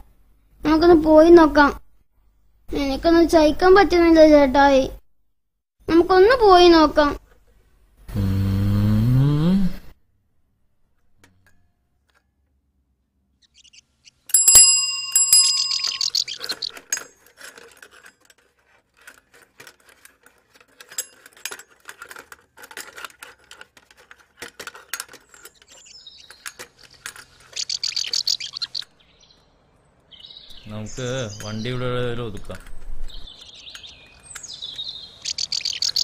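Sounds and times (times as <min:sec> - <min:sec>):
faint clicks and rattles: 0:14.2 - 0:30.6, 0:31.2 - 0:36.0
bicycle bell ringing: 0:14.3 - 0:16.8.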